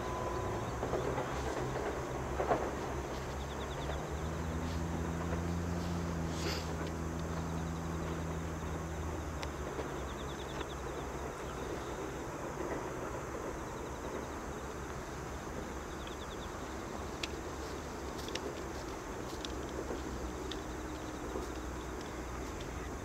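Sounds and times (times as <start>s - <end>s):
electric train rumble: 0.0s - 23.0s
insects chirping: 0.0s - 23.0s
steady hum: 0.0s - 23.0s.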